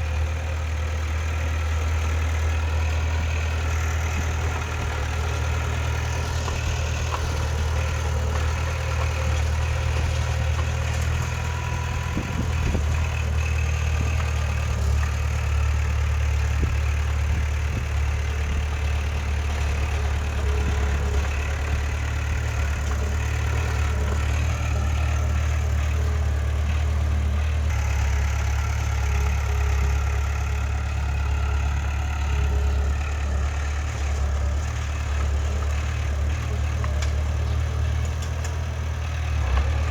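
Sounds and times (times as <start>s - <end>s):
heavy diesel engine droning: 0.0s - 39.9s.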